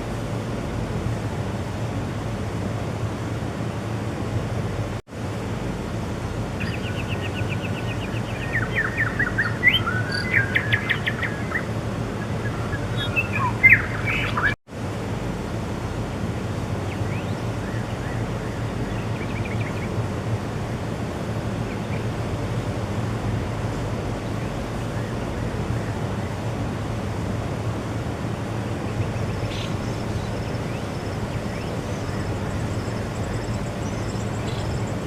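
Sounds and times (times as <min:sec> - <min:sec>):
small bird chirping and trilling: 0:29.1 - 0:35.0.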